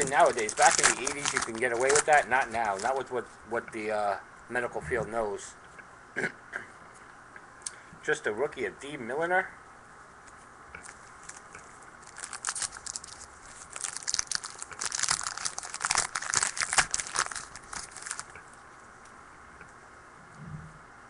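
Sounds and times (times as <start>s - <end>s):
card packaging crinkling: 0.0s - 3.2s, 10.8s - 18.5s.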